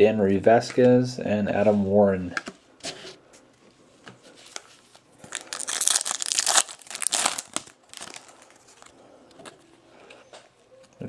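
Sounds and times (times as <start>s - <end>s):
foil wrapper crinkling and tearing: 5.2s - 8.9s.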